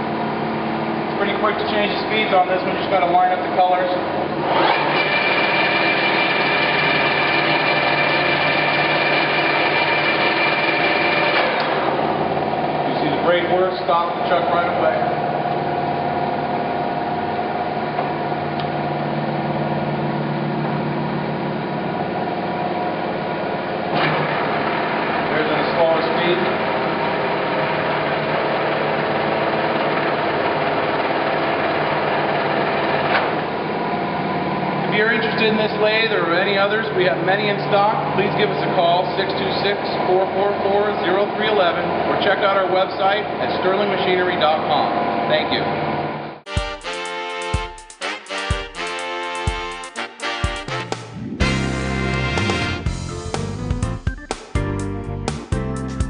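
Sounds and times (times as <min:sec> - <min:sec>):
lathe gear whine: 0:00.0 - 0:46.4
headstock mechanical clatter: 0:04.4 - 0:11.9.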